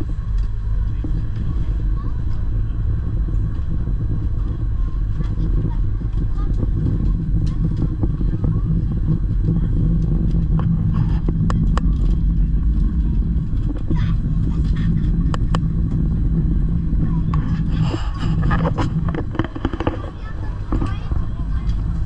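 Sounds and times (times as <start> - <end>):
train rumble and hum: 0.0 - 22.0
sharp clicks and knocks: 17.2 - 21.8.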